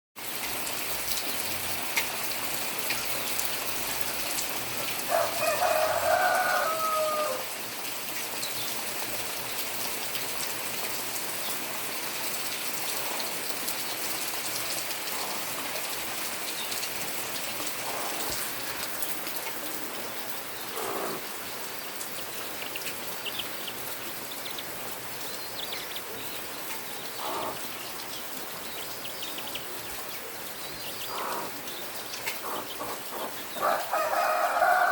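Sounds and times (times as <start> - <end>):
rain-like hiss: 0.2 - 34.9
rooster crowing: 5.1 - 7.5, 33.6 - 34.9.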